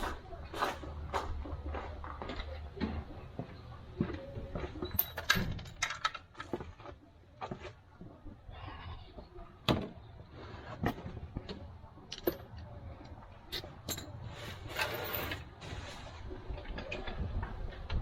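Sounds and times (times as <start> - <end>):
tools and parts clicking and knocking: 2.3 - 7.6, 10.8 - 15.5
rustling scrape: 14.2 - 16.5.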